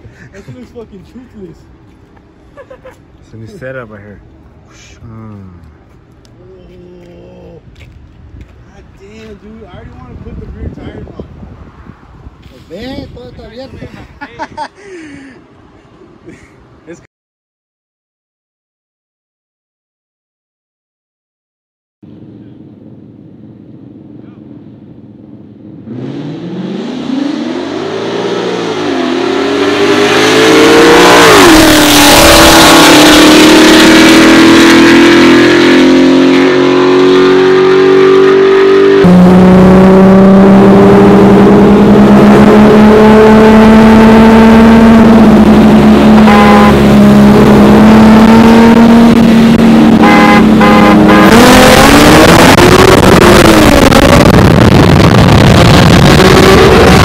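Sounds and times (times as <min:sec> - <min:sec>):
racing car engines at full throttle: 0:22.1 - 0:57.0.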